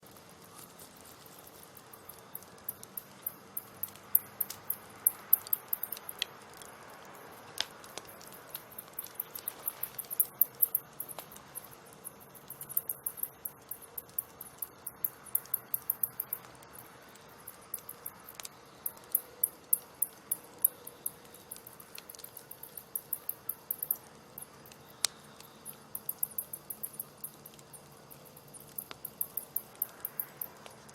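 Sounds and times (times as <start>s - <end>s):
wood fire crackling: 0.0s - 30.9s.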